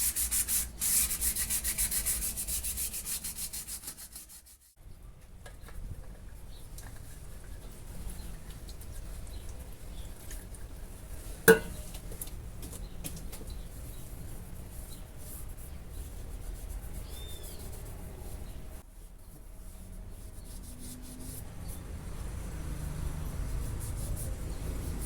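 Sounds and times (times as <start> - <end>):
sharp knock: 11.5 - 11.9.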